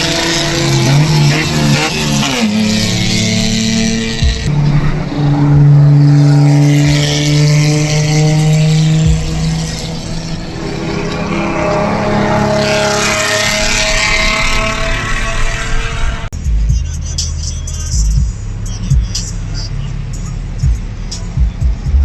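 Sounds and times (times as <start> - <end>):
car engine exhaust low note: 0.0 - 13.7, 14.5 - 22.0.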